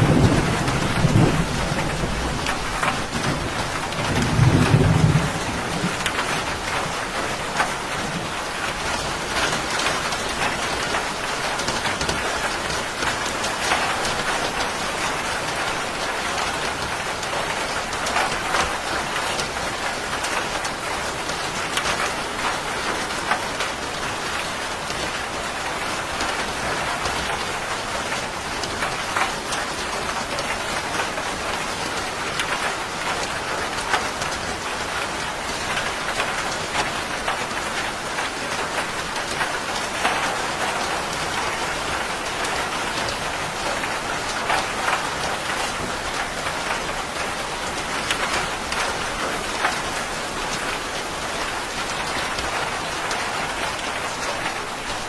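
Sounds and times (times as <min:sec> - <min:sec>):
rain on a hard surface: 0:00.0 - 0:55.0.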